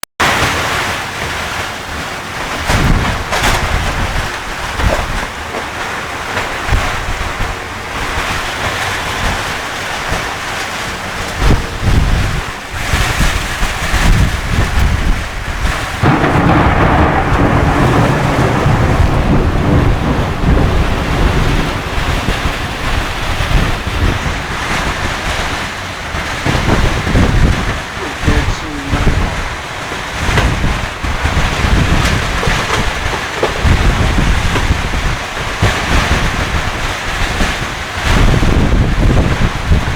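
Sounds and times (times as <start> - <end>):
heavy rain: 0.2 - 39.9
rolling thunder: 1.9 - 39.9
sharp thunder cracks: 11.4 - 39.9.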